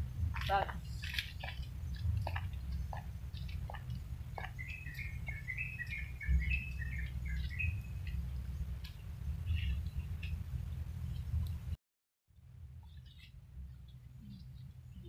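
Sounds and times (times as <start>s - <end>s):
low rumble: 0.0s - 11.8s
bird chirping: 0.2s - 11.4s, 12.8s - 15.0s.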